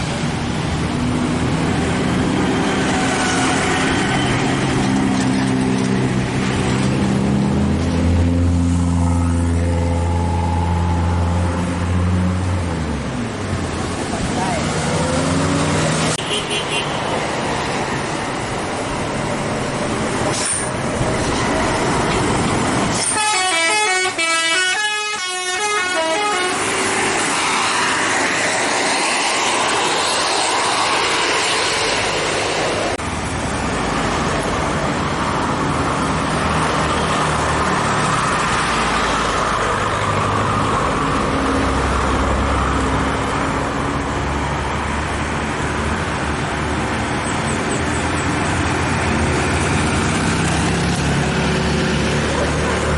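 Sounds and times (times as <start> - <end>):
heavy truck engines straining: 0.0 - 16.2, 17.0 - 24.4, 25.8 - 52.9
multi-note musical horn: 23.0 - 26.6.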